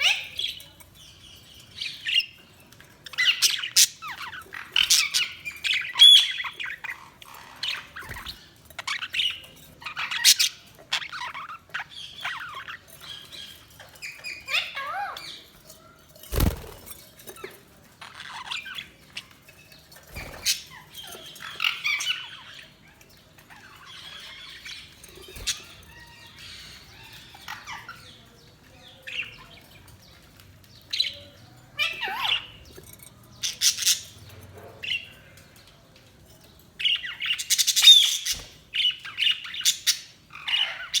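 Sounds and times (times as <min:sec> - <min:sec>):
budgerigars chirping and warbling: 0:00.0 - 0:41.0.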